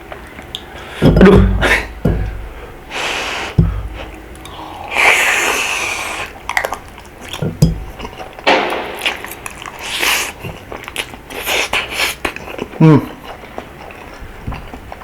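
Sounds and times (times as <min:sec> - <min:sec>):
chewing and slurping noodles: 0:03.0 - 0:08.4, 0:09.0 - 0:15.0.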